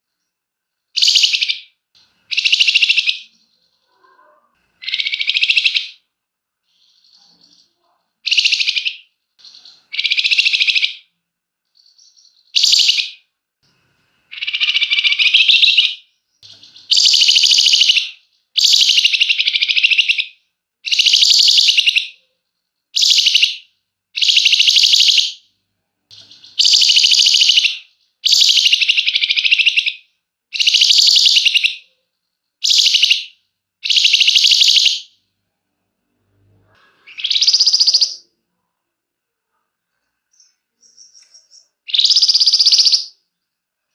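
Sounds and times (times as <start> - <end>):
bird rattling trills: 16.6 - 18.0, 26.3 - 27.7, 30.6 - 31.6.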